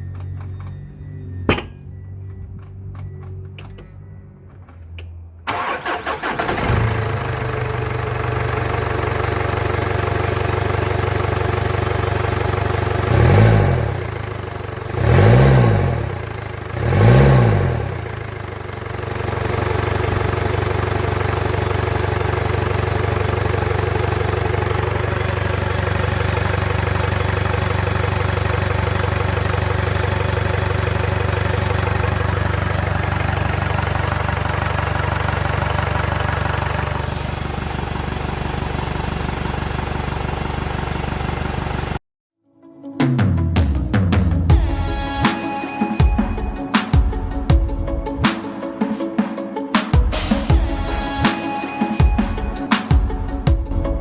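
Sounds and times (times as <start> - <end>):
engine cranking and idling: 0.0 - 42.0
engine revving: 5.5 - 8.3, 10.0 - 40.2.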